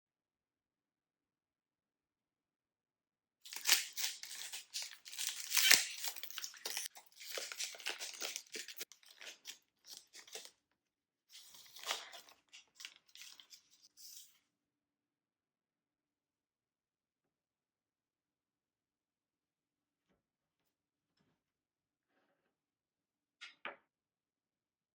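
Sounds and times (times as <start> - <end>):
snack wrapper crinkling and tearing: 3.5 - 10.5.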